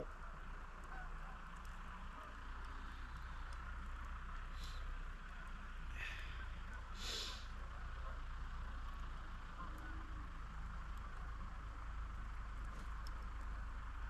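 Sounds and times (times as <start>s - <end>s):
distant tractors droning: 0.0s - 14.0s
short hisses: 7.0s - 7.5s.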